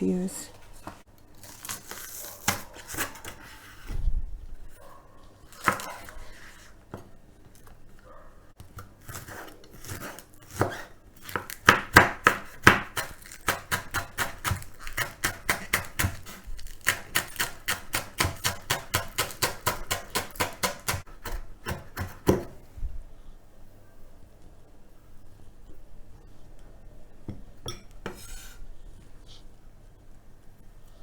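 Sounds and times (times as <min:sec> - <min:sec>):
knife chopping on cutting board: 0:09.0 - 0:22.6.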